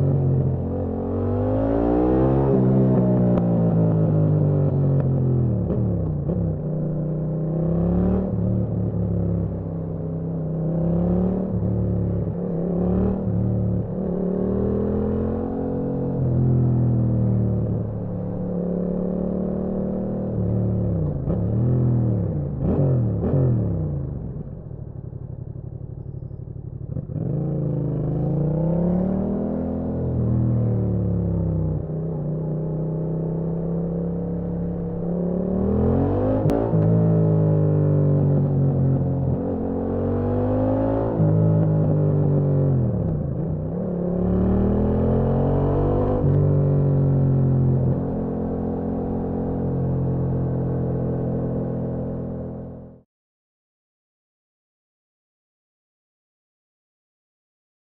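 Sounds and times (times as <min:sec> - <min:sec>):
motorcycle engine revving: 0:10.5 - 0:53.0.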